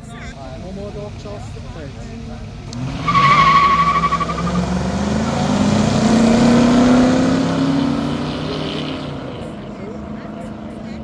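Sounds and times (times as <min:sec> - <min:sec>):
cars accelerating hard: 0:00.0 - 0:11.0
tyre squeal: 0:02.9 - 0:04.7.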